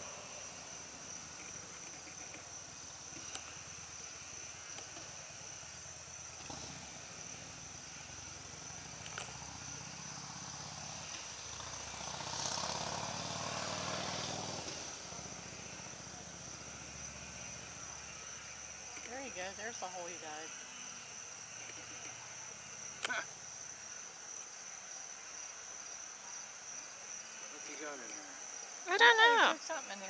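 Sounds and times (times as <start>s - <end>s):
insects trilling: 0.0s - 30.0s
distant engine passing: 5.9s - 23.0s.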